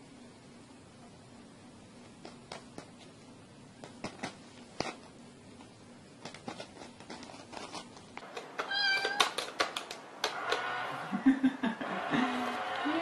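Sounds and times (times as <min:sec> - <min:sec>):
cat meowing: 0:08.6 - 0:09.4.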